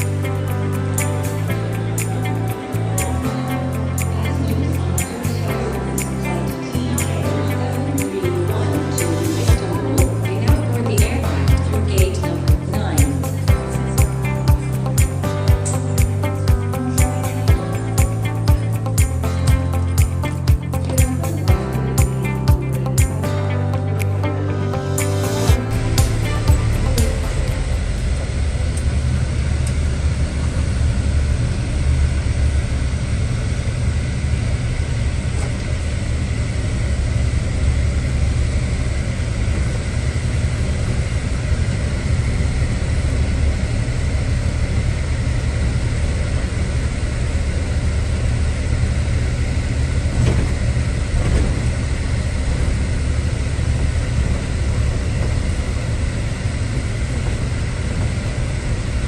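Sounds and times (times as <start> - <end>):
low engine rumble: 0.0 - 59.0.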